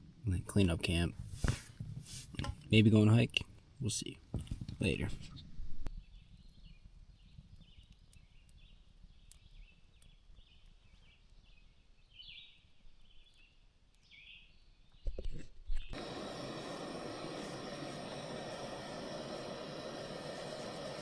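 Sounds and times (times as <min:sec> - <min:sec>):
steady hiss: 0:16.0 - 0:21.0.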